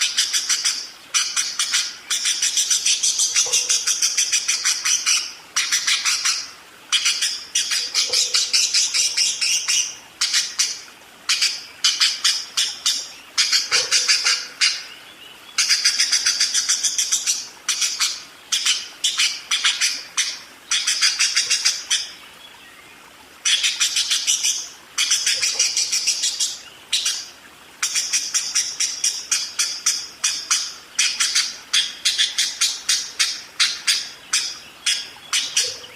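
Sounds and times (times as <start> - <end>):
budgerigar chattering: 0.0 - 14.9.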